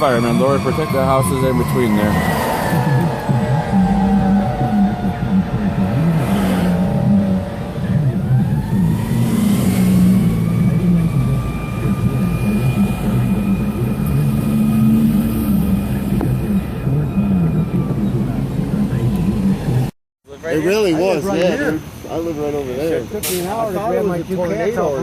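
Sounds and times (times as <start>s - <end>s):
high whine: 0.0s - 19.9s.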